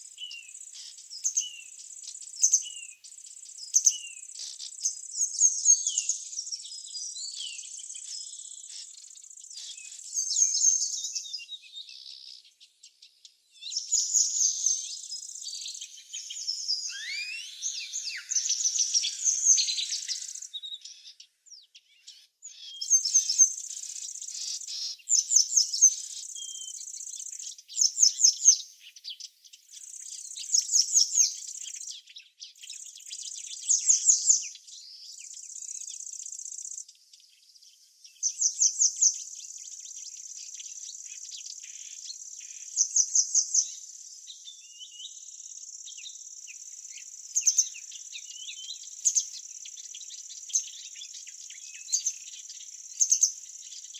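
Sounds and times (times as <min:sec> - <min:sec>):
small songbirds chirping: 0:00.0 - 0:53.9
high insect trill: 0:16.0 - 0:20.6.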